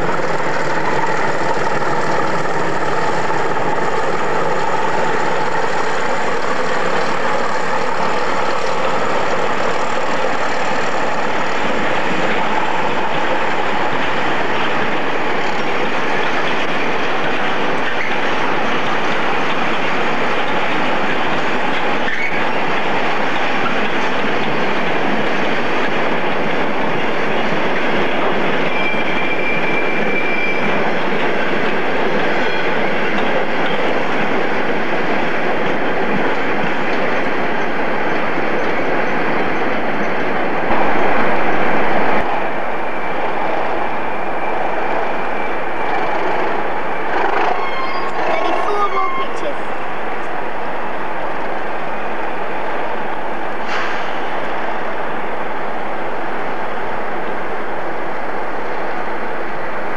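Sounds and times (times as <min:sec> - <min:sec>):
train wheels rumbling and clattering: 0:00.0 - 0:59.9
faint wheel squeal: 0:21.7 - 0:22.6, 0:28.6 - 0:31.2, 0:47.1 - 0:49.5.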